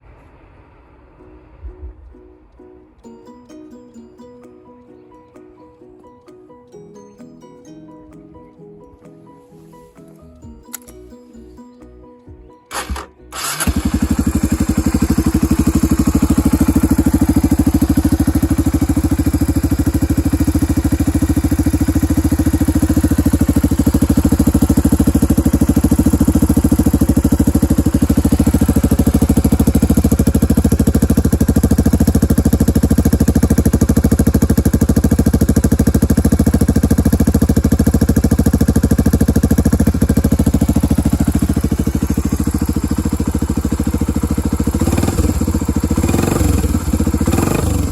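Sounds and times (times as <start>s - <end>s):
motorcycle engine idling loudly: 12.7s - 47.9s.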